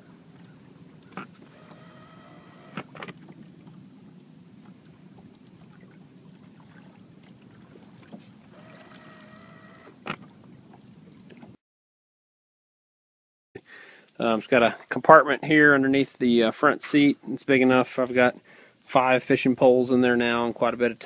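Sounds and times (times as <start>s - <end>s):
low steady hum: 0.0s - 11.6s
electric motor whining: 1.5s - 2.9s, 8.5s - 10.0s.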